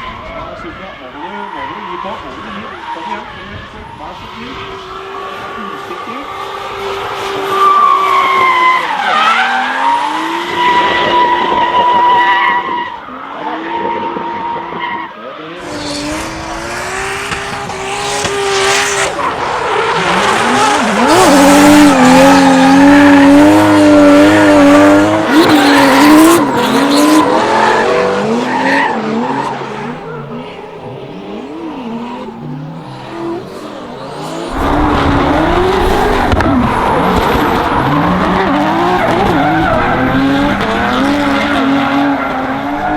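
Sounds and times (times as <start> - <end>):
car engine revving: 15.4 - 42.9.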